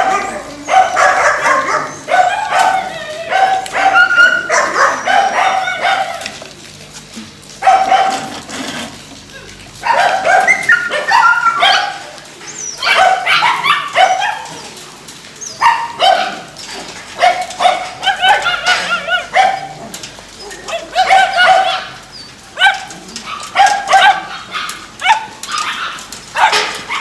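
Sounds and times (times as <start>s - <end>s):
dogs barking: 0.0s - 27.0s.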